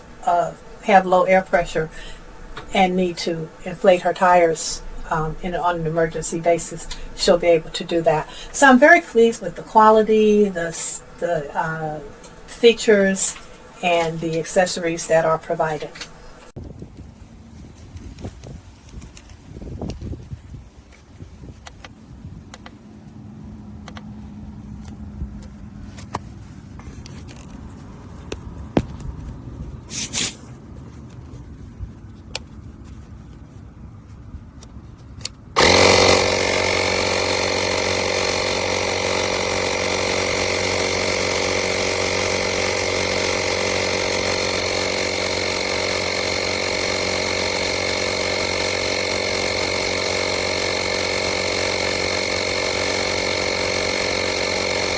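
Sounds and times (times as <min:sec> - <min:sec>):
air compressor buzzing with whine: 0:00.0 - 0:16.6, 0:35.6 - 0:54.9.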